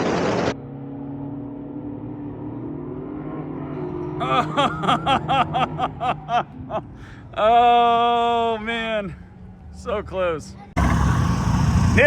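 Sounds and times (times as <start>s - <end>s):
car engine running at low revs: 10.7s - 12.0s.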